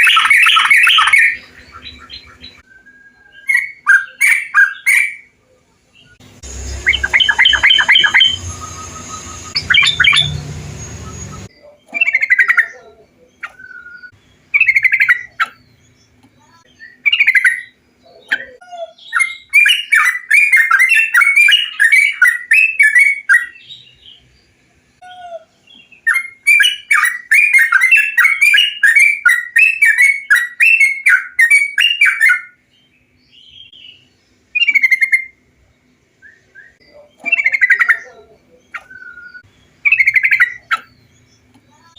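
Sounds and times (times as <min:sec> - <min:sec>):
bird song warbles: 0:00.0 - 0:41.9
recording hiss and hum: 0:05.2 - 0:11.5.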